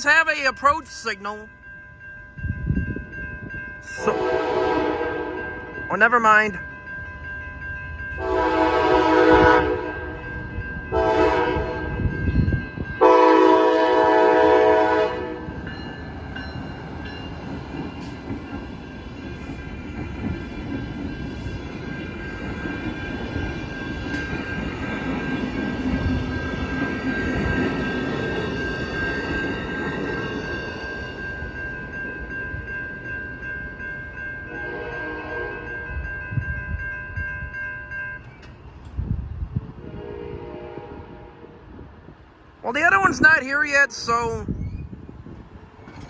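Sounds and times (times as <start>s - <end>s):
crossing bell ringing: 0.0s - 39.0s
locomotive horn blasts: 4.0s - 5.4s, 8.2s - 10.2s, 10.9s - 12.0s, 13.0s - 15.6s, 34.5s - 35.8s, 39.8s - 41.6s.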